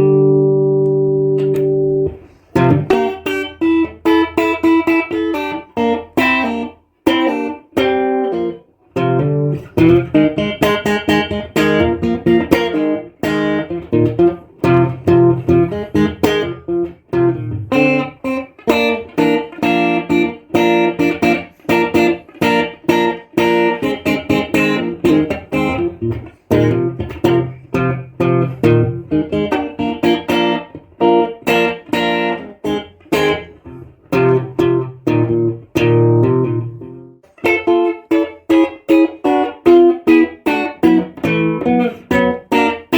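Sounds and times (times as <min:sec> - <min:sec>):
electric guitar playing: 0:00.0 - 0:42.9.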